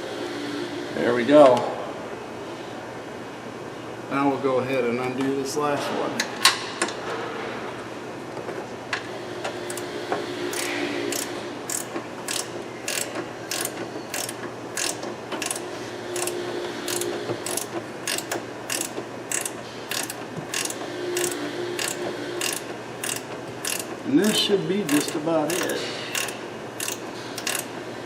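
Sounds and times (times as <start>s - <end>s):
ratchet wrench clicking: 10.5s - 27.7s.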